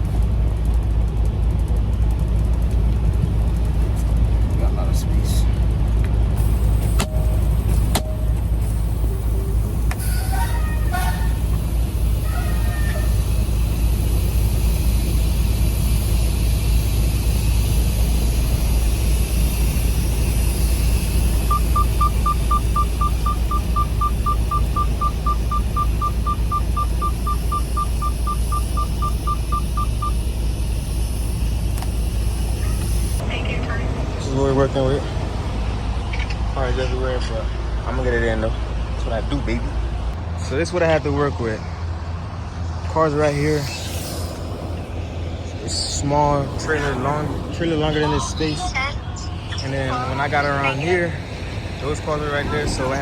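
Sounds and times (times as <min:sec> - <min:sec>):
truck diesel engine running: 0:00.0 - 0:53.0
rapid electronic beeping: 0:19.9 - 0:33.3.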